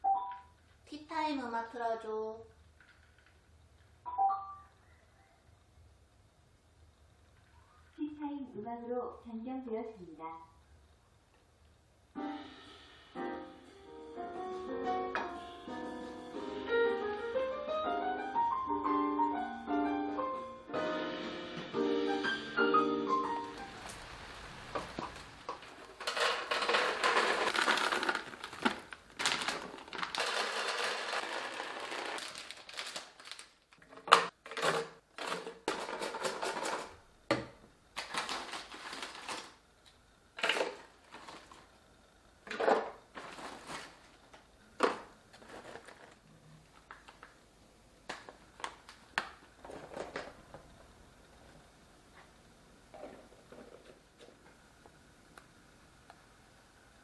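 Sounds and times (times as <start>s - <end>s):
food packaging crinkling: 23.5s - 37.0s, 37.9s - 41.8s, 43.1s - 44.4s, 45.3s - 47.4s, 48.1s - 50.7s
plastic containers clicking and knocking: 25.5s - 32.2s, 33.8s - 38.6s.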